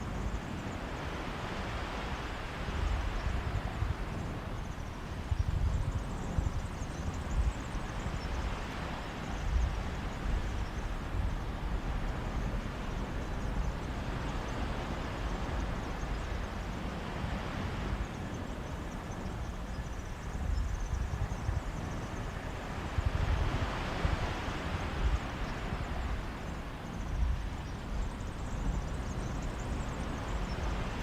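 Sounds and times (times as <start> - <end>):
wind buffeting microphone: 0.0 - 31.0
sea waves washing onto beach: 21.8 - 27.5.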